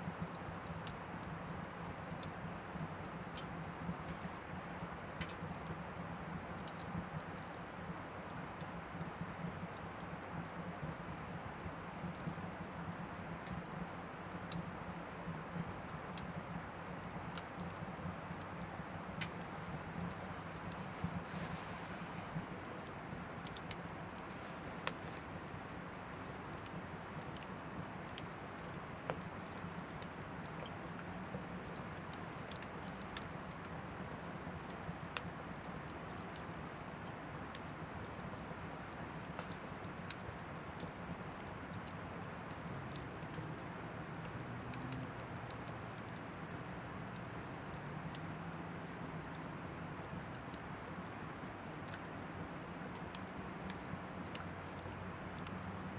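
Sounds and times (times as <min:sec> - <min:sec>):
wood crackling and popping: 0:00.0 - 0:55.9
fire rushing in wood stove: 0:15.6 - 0:44.4.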